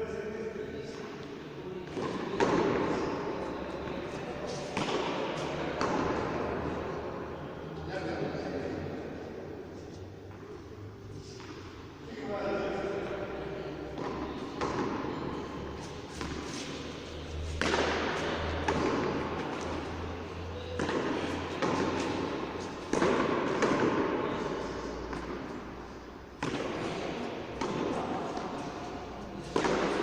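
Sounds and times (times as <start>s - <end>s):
ball hitting wall with echo: 1.8s - 3.4s, 4.6s - 7.0s, 13.9s - 30.0s.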